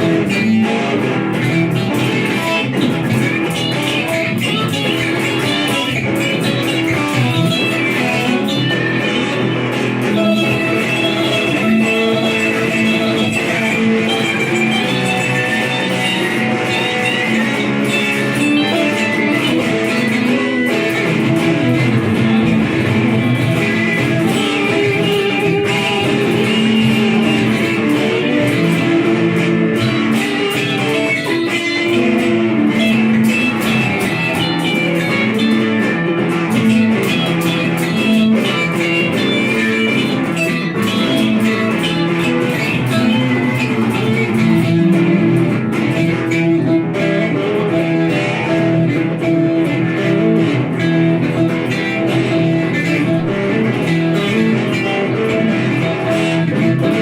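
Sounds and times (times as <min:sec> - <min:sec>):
guitar plucked notes: 0:00.0 - 0:57.0.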